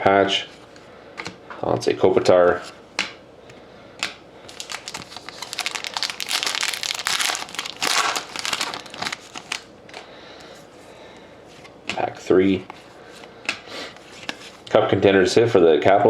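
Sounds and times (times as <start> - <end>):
wrapper crinkling and tearing: 4.5 - 9.7.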